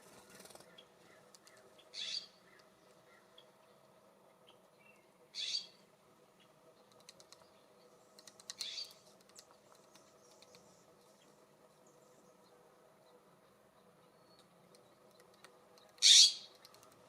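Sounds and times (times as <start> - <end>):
harsh raspy bird calls: 0.1 - 3.5, 5.3 - 5.8, 16.0 - 16.5
light clicks and taps: 6.9 - 7.5, 8.1 - 10.8, 14.3 - 17.0.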